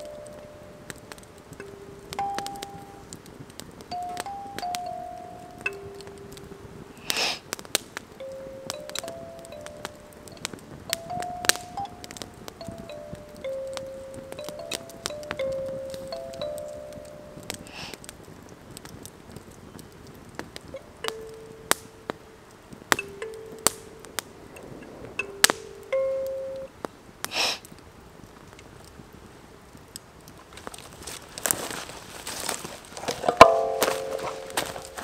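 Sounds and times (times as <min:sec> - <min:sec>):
kalimba notes plucked: 0:00.0 - 0:03.1, 0:03.9 - 0:07.0, 0:08.2 - 0:17.7, 0:20.8 - 0:26.7, 0:33.2 - 0:35.0.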